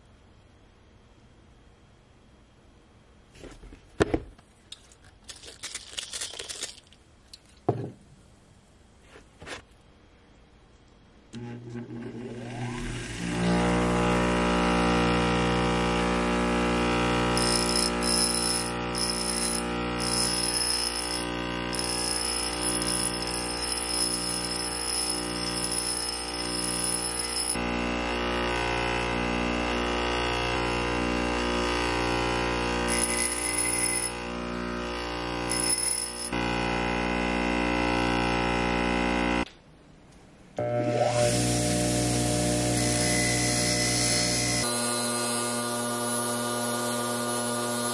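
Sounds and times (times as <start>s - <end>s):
bench grinder motor whine: 11.4s - 39.4s, 40.6s - 47.9s
metal grinding on stone wheel: 17.4s - 27.6s, 32.9s - 34.2s, 35.5s - 36.4s.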